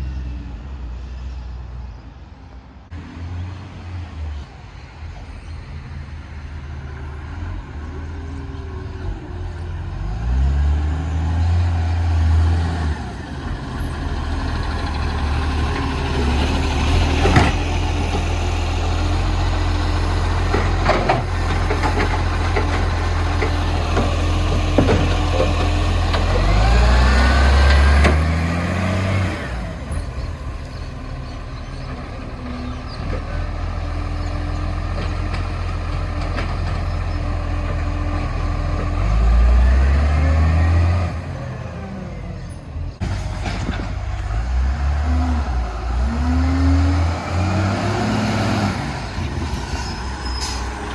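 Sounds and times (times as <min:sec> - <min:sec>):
diesel engine revving: 0:02.9 - 0:50.9
metal clanks and knocks: 0:20.5 - 0:26.4.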